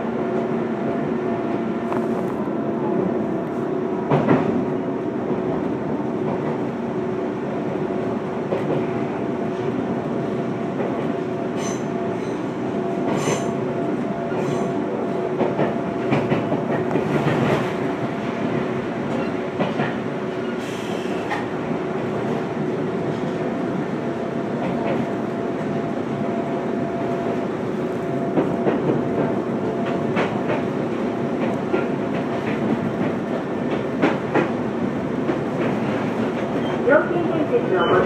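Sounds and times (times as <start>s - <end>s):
electric train hum and rolling: 0.0s - 38.0s.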